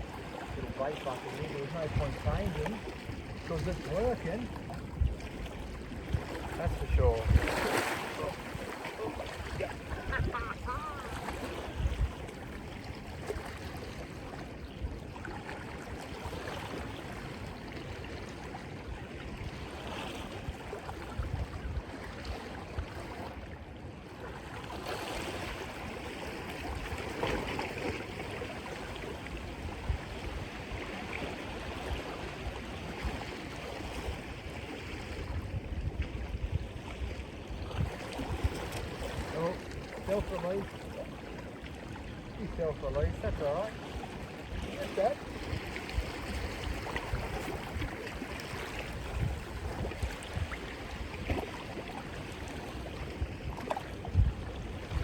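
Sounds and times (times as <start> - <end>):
sea surging against rocks: 0.0 - 55.0
wind gusting on microphone: 1.5 - 13.3, 42.4 - 51.6, 53.1 - 55.0.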